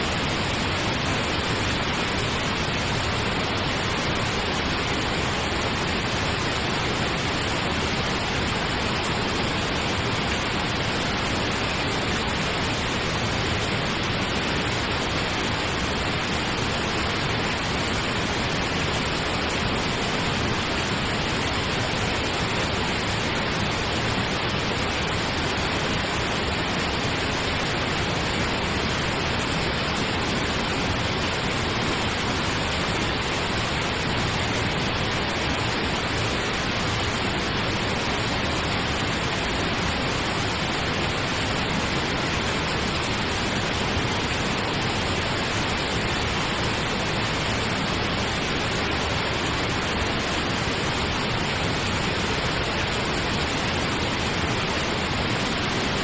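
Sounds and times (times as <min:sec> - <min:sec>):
steady pink noise hiss: 0:00.0 - 0:56.0.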